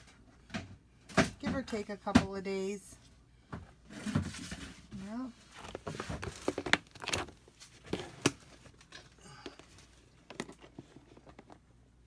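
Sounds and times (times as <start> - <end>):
plastic containers clicking and knocking: 5.6 - 11.7.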